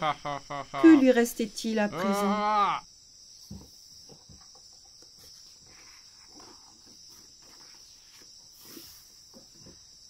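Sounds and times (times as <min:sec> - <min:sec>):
book page turning: 0:05.1 - 0:09.1.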